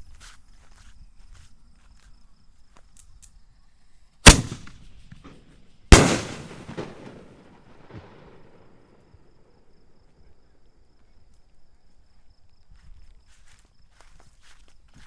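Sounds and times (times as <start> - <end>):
firework bangs with echo: 4.3 - 5.4, 6.0 - 8.8
faint firework crackle: 4.3 - 9.0.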